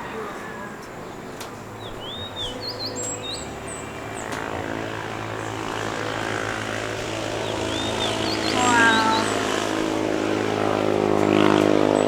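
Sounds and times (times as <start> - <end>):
small birds chirping: 1.1 - 4.4, 5.4 - 12.0
motor drone: 2.3 - 12.0.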